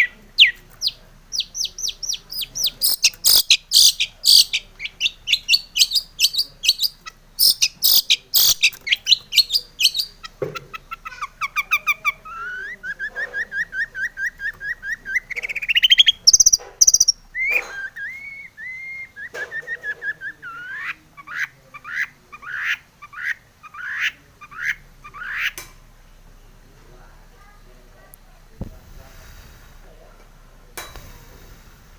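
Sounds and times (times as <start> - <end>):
bird harsh chattering: 0.0 - 19.0, 20.0 - 25.6.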